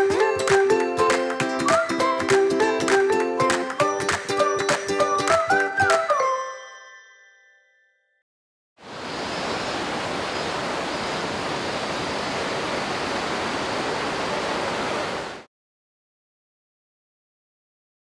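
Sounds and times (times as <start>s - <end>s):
stream water flowing: 8.8s - 15.5s.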